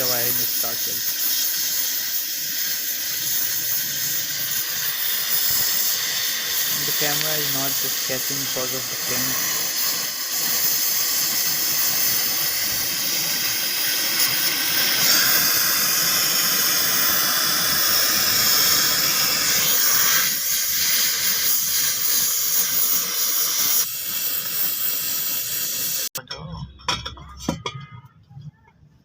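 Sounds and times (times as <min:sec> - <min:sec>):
welding torch flame hissing: 0:00.0 - 0:26.2.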